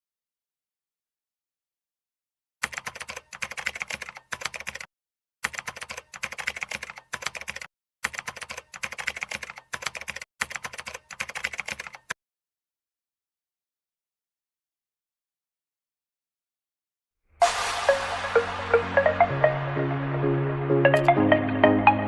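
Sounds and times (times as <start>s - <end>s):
rapid keyboard key clicks: 2.6s - 12.2s.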